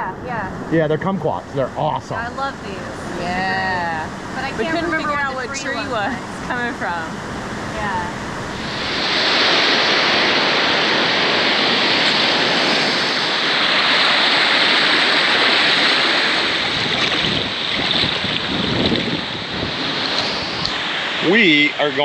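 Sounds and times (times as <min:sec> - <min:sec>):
rushing river water: 0:08.4 - 0:22.0.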